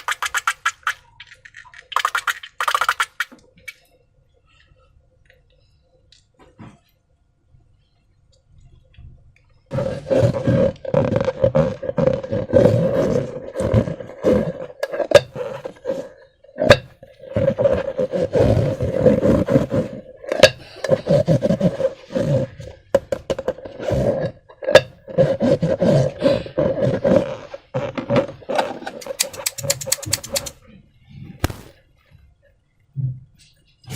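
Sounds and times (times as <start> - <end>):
slime balloons squelching: 0.0 - 3.4, 9.7 - 22.7, 25.0 - 30.6
sharp snaps: 29.0 - 30.6, 31.4 - 31.8.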